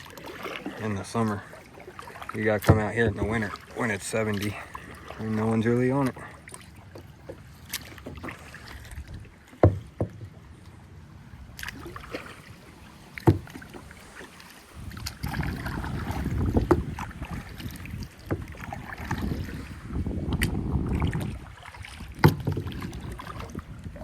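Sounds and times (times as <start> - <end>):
paddle knocking against kayak: 0.0 - 10.5, 11.6 - 24.0.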